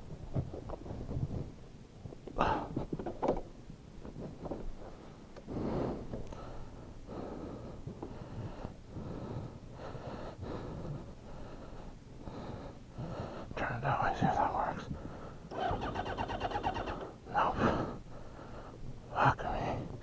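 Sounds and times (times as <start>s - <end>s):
person breathing heavily: 2.4s - 2.9s, 4.8s - 15.6s, 16.9s - 18.8s.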